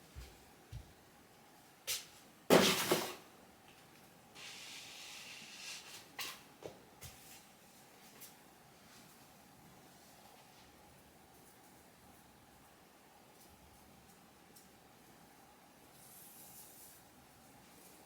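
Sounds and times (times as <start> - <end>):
soft rustling hiss: 3.6 - 18.0.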